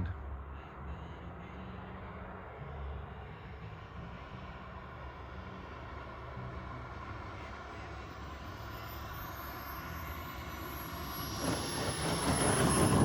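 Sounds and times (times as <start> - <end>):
model jet turbine whine: 5.7 - 13.0.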